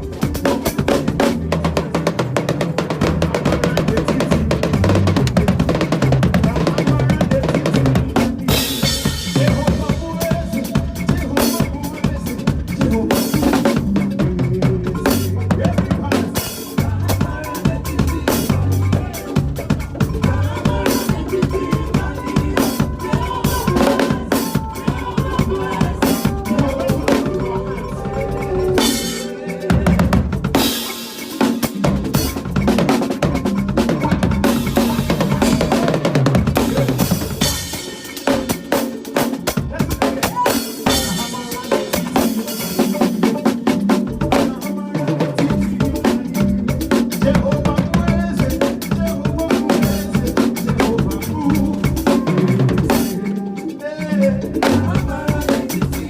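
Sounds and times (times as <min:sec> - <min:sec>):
drum kit playing groove: 0:00.0 - 0:56.0
keyboard and bass backing track: 0:00.0 - 0:56.0
bass line: 0:13.9 - 0:30.6.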